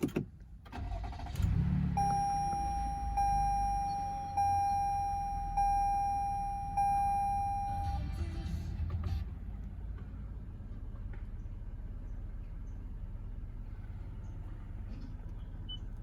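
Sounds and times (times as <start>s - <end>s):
car engine idling: 0.0s - 16.0s
dashboard warning chime: 1.9s - 8.1s.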